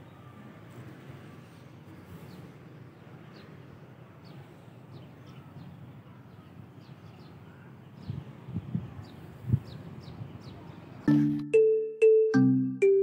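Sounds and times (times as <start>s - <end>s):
small birds chirping: 1.5s - 11.4s.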